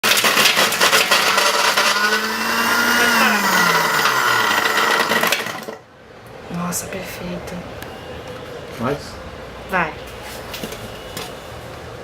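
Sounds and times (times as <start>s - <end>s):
electric blender whirring: 0.0s - 5.9s.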